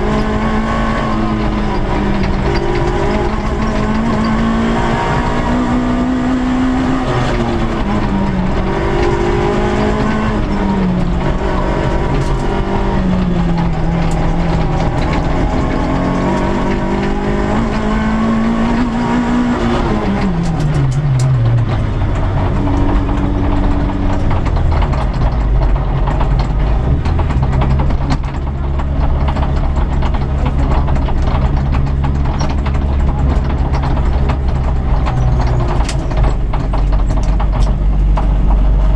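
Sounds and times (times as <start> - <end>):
car engine revving: 0.0 - 38.9
cabin clicks and rattles: 20.0 - 38.9.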